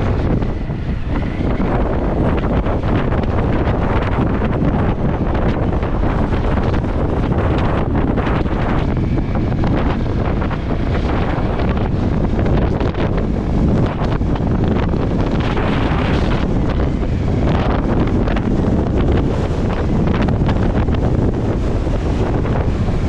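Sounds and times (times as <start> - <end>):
wind blowing across microphone: 0.0 - 23.0.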